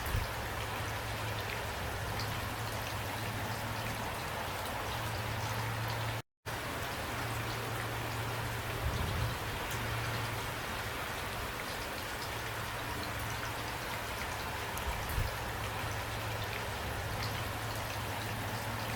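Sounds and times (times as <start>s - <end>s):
steady rain falling: 0.0s - 18.9s.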